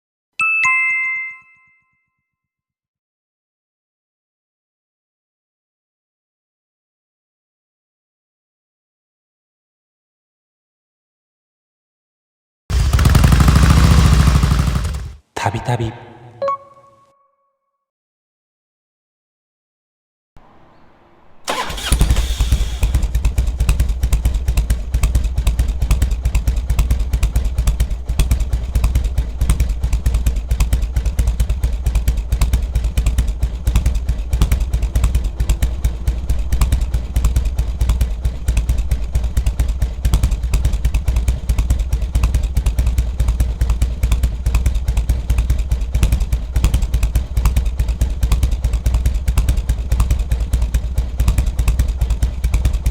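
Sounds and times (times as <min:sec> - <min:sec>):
motorcycle engine starting and idling: 0:12.7 - 0:15.2, 0:20.4 - 0:52.9.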